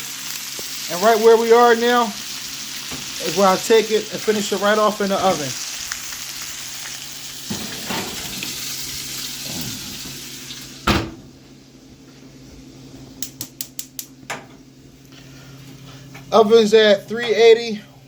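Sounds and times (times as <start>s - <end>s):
meat sizzling in a pan: 0.0s - 10.9s
loud clunk: 7.5s - 8.6s, 10.8s - 11.3s.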